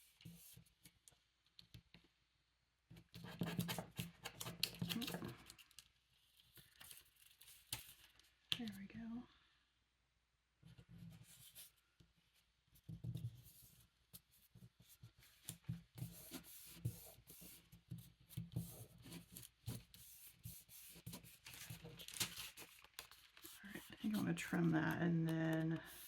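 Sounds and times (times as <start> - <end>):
paper rubbed and scraped by hand: 14.8 - 24.7.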